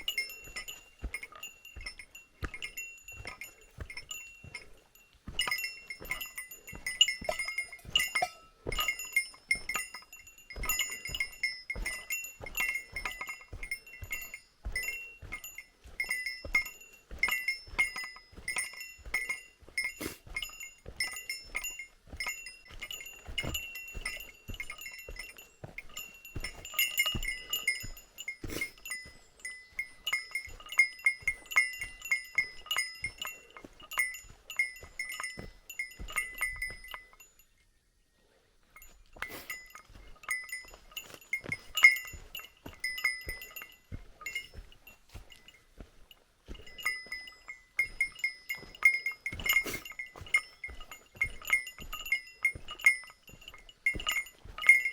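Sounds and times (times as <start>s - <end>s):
small metal bell jingling: 0.0s - 37.8s, 38.6s - 54.9s.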